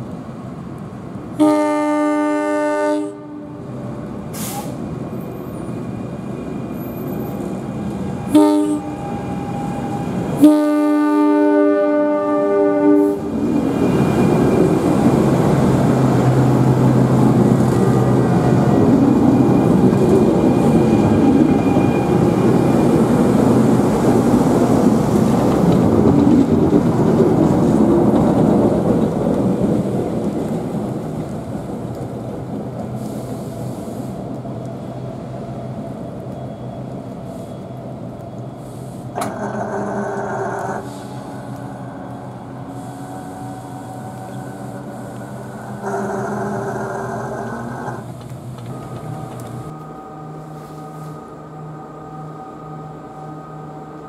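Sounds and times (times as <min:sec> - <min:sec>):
train horn blasts: 0:01.4 - 0:03.7, 0:08.2 - 0:13.3, 0:49.7 - 0:53.9
train wheels rumbling on rails: 0:03.1 - 0:51.3.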